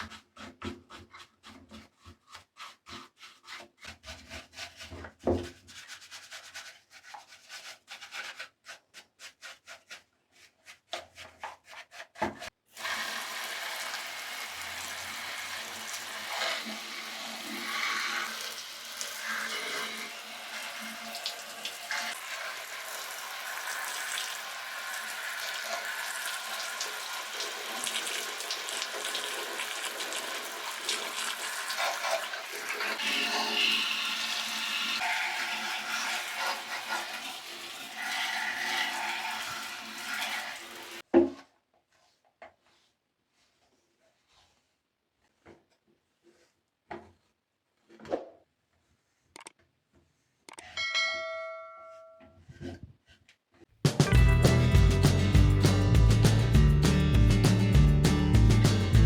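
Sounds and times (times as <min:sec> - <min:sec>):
brush scrubbing toy: 0:00.0 - 0:41.1, 0:41.9 - 0:47.3.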